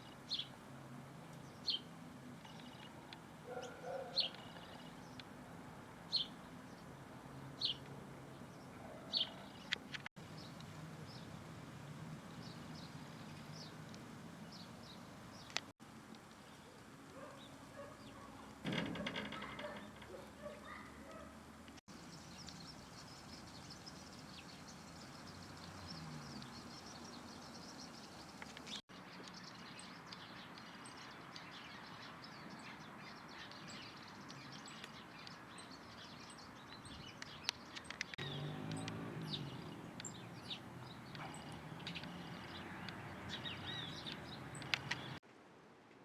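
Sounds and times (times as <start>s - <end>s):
small birds chirping: 0.0s - 0.6s, 1.3s - 45.2s
faint steady hiss: 9.7s - 20.4s.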